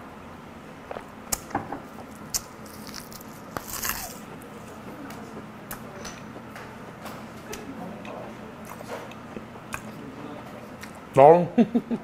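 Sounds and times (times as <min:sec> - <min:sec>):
crisp crunch of biting: 0:02.3 - 0:04.2.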